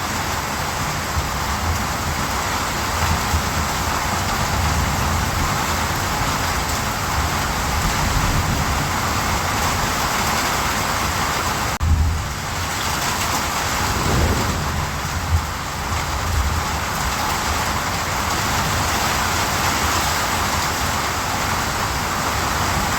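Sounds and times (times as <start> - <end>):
low rumble: 13.6 - 16.4.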